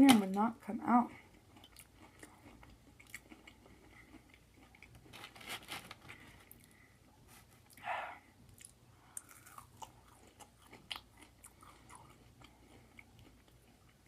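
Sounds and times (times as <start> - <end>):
person chewing: 1.1 - 6.8, 8.5 - 14.0.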